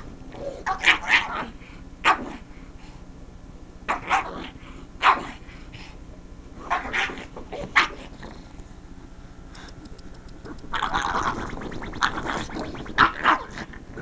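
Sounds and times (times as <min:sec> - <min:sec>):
dog barking and yelping: 0:00.7 - 0:02.4, 0:03.9 - 0:05.4, 0:06.6 - 0:08.1, 0:12.1 - 0:13.7.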